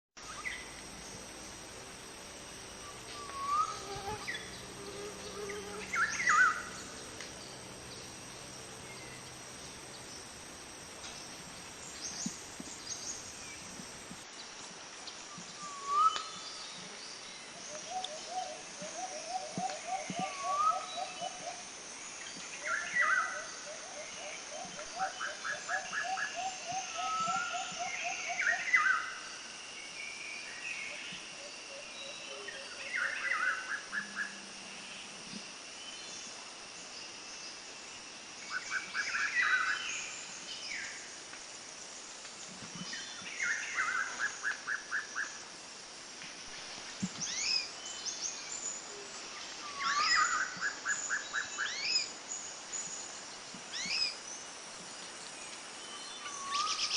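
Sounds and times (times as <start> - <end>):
birds singing: 0.2 - 10.4.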